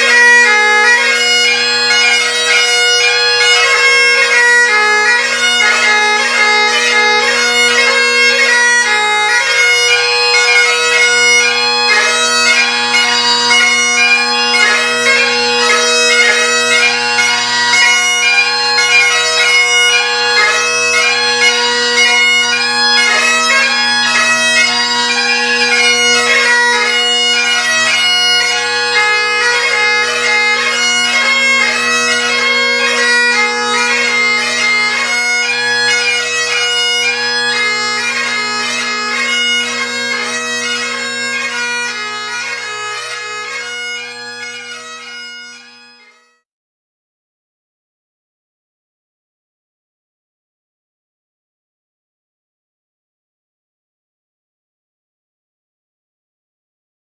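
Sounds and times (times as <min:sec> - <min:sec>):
bagpipe chanter melody: 0:00.0 - 0:46.4
bagpipe drones humming: 0:00.0 - 0:46.4.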